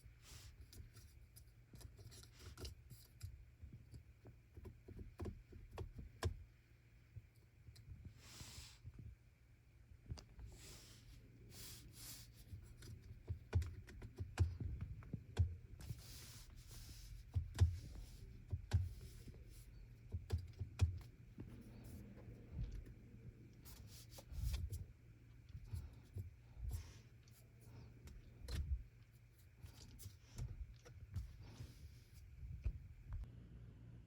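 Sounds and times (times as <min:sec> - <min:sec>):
soft low thumps: 0:30.2 - 0:33.3.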